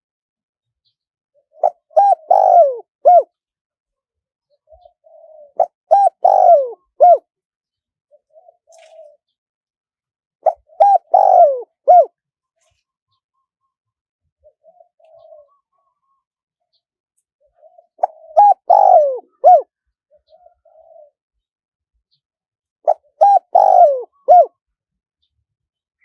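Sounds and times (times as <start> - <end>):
dove cooing: 1.4 - 3.3, 4.6 - 7.3, 8.1 - 9.3, 10.4 - 12.2, 14.4 - 16.2, 17.4 - 21.2, 22.9 - 24.6.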